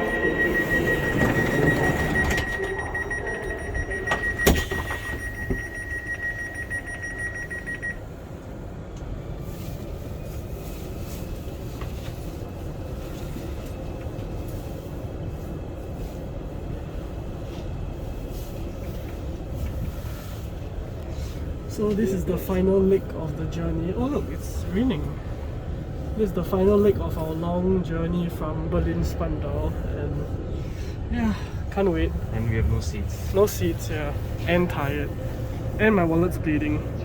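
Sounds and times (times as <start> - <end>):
steady high tone: 0.0 - 8.0
steady low rumble: 0.0 - 37.0
train running noise: 0.0 - 37.0.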